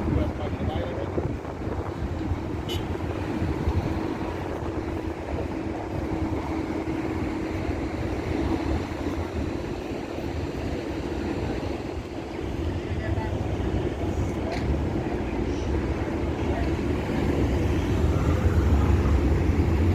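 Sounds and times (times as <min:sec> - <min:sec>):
wind on microphone: 0:00.0 - 0:15.2
passing traffic rumble: 0:00.0 - 0:19.9.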